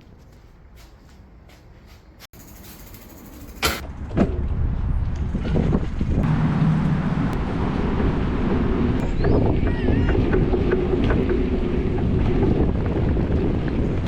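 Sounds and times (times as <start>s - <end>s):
road noise rumble: 0.0s - 14.0s
wind on microphone: 3.8s - 14.0s.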